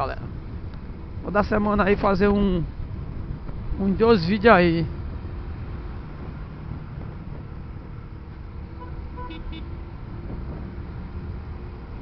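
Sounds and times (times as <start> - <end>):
motorcycle engine and road rumble: 0.0 - 12.0
horn toots: 8.8 - 9.8.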